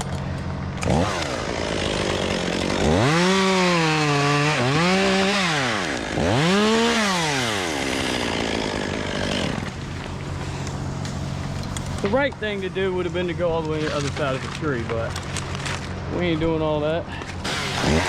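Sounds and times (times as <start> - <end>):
chainsaw revving and cutting: 0.8 - 11.0, 17.4 - 18.0.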